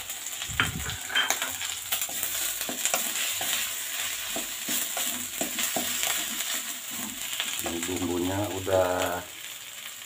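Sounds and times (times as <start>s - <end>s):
spice paste sizzling in oil: 0.0s - 10.0s
wooden spatula scraping a pan: 0.8s - 8.2s.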